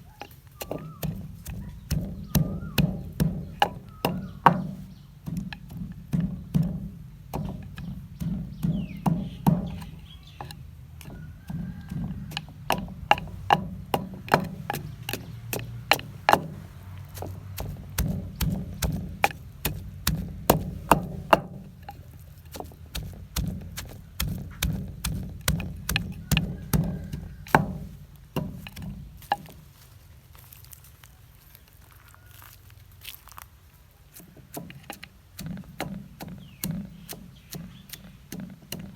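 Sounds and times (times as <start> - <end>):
hard knocks of pounding food: 0.2 - 29.6, 34.4 - 38.9.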